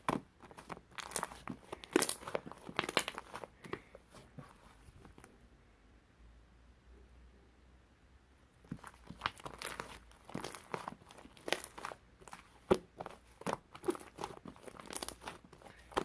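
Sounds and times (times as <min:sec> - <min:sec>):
crinkling paper or plastic: 0:00.0 - 0:05.3, 0:08.7 - 0:16.0.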